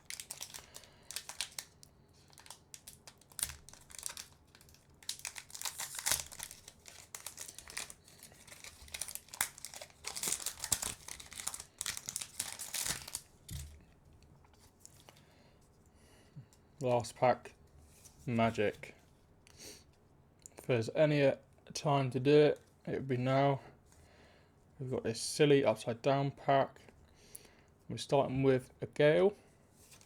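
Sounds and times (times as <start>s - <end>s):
wrapper crinkling and tearing: 0.0s - 13.8s.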